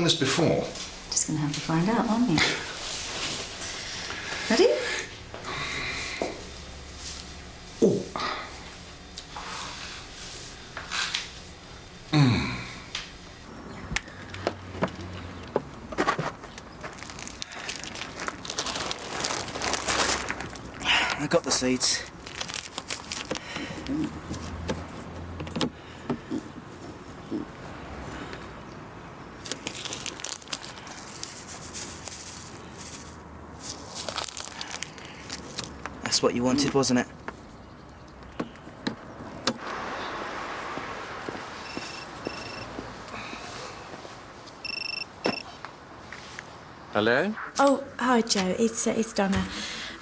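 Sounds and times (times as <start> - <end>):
man moaning: 7.8 - 8.5, 12.1 - 12.9
man sighing: 7.8 - 8.6, 12.1 - 13.0
packet crinkling and rustling: 16.3 - 24.5, 29.4 - 36.8.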